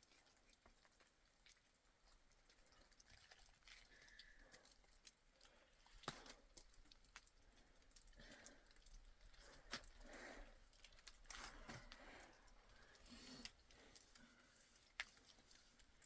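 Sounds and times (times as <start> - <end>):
faint clicks and taps: 3.8 - 16.0.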